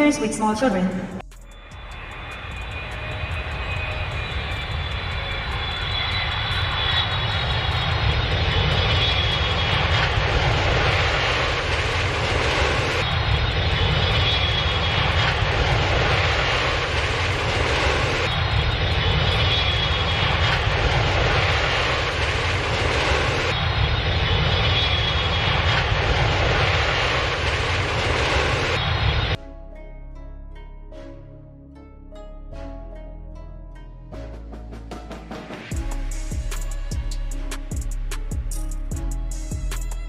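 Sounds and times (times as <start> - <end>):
aircraft engine rumble: 0.0 - 29.4.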